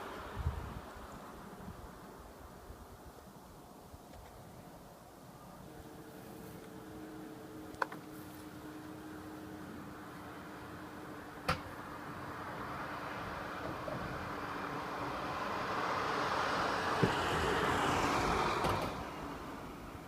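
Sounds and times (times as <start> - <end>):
vehicle passing: 5.9 - 20.0.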